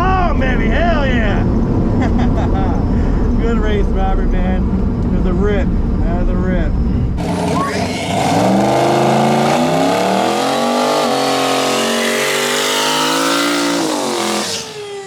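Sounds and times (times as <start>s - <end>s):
drag car engine at full throttle: 6.8s - 15.0s.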